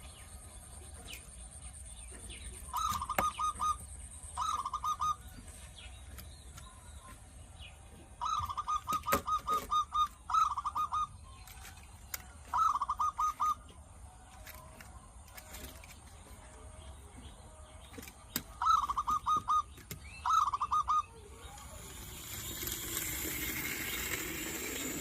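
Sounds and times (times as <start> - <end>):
bird chattering call: 2.6 - 5.4, 8.2 - 11.3, 12.5 - 13.7, 18.4 - 25.0.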